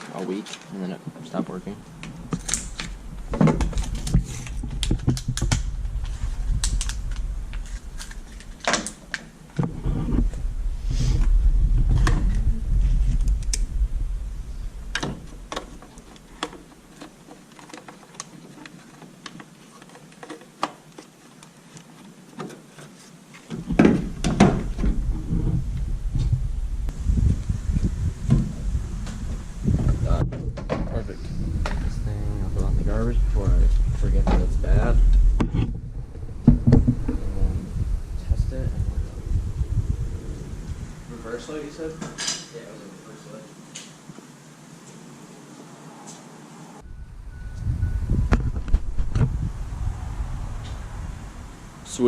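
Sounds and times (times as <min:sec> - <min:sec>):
low rumble: 0:01.9 - 0:16.3, 0:23.7 - 0:42.2, 0:46.8 - 0:52.0.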